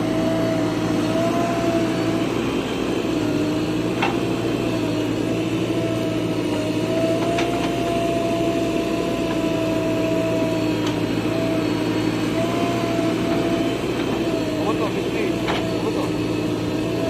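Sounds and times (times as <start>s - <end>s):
bulldozer diesel engine running: 0.0s - 17.0s
steady whine: 0.0s - 17.0s.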